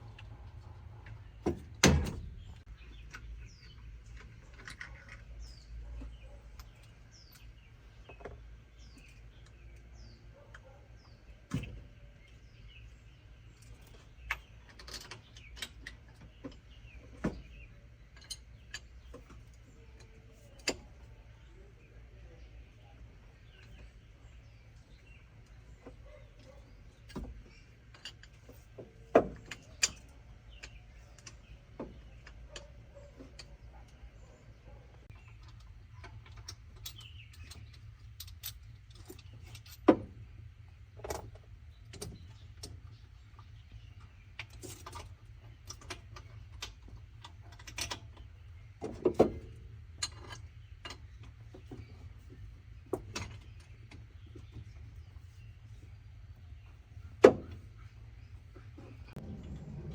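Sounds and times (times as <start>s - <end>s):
low hum: 58.2s - 59.9s.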